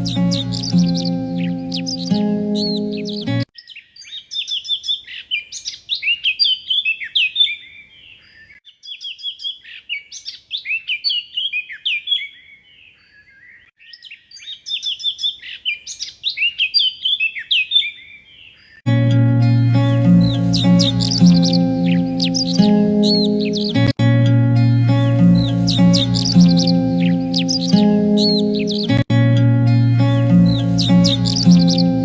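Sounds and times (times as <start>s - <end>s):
music: 0.0s - 3.5s, 18.9s - 32.0s
songbird chirps and trills: 0.0s - 32.0s.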